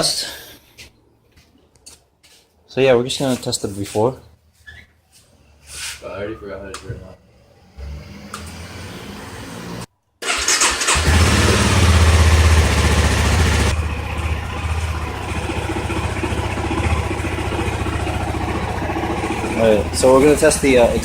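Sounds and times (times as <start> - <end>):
motorcycle engine starting and idling: 6.6 - 21.0.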